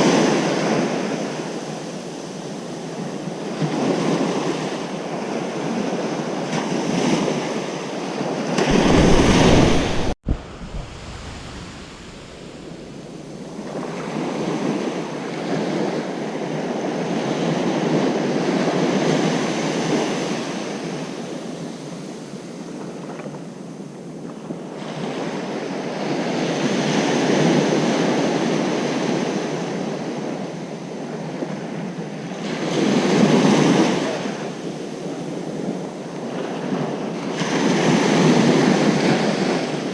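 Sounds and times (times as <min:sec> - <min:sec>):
waves breaking on a beach: 0:00.0 - 0:39.9
deep rumble of surging wave: 0:08.6 - 0:14.4.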